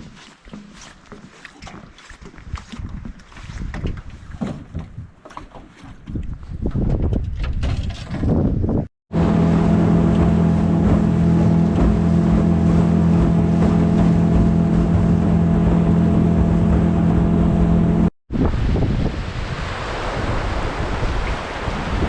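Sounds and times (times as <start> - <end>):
water noise: 0.0 - 6.8, 9.1 - 22.0
wind: 0.0 - 22.0
outboard motor running: 9.1 - 18.1.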